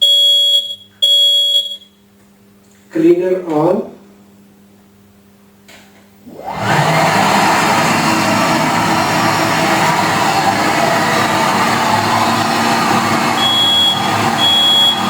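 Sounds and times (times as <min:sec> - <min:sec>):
floor scrubber motors whirring: 0:06.2 - 0:15.0.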